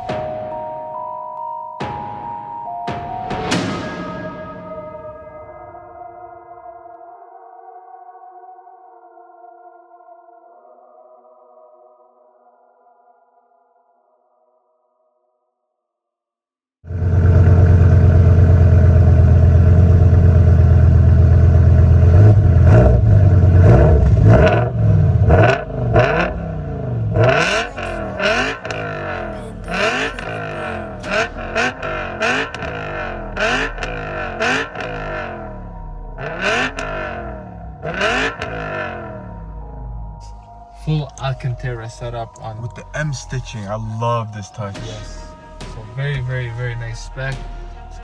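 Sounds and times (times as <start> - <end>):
car engine idling and revving: 16.9 - 41.4.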